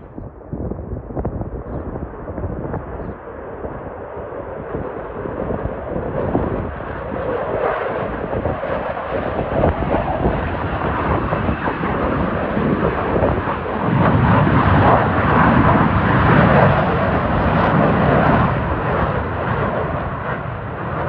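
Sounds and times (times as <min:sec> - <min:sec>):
fighter jet engine: 0:00.0 - 0:21.0.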